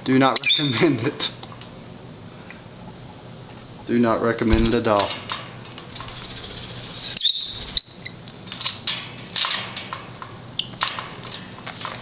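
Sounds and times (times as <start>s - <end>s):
parrots scuffling: 4.6s - 12.0s
parrots chirping and clicking: 5.0s - 12.0s.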